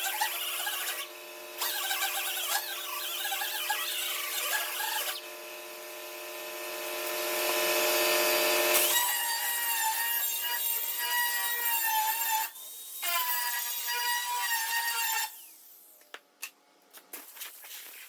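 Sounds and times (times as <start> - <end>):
power grinder grinding metal: 0.0 - 12.5.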